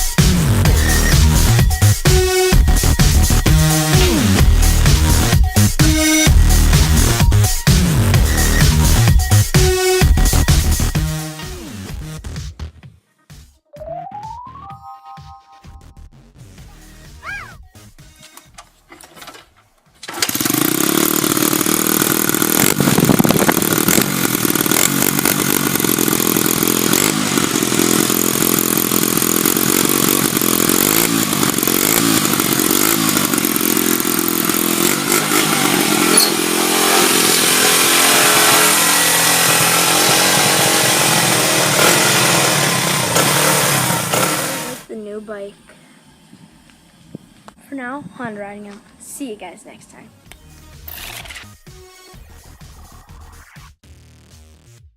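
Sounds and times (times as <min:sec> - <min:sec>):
dirt bike engine revving: 0:00.0 - 0:12.0, 0:20.1 - 0:44.9.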